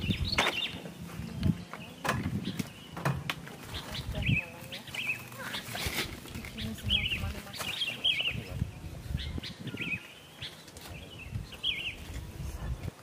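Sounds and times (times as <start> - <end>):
songbird chirping: 0.0 - 13.0.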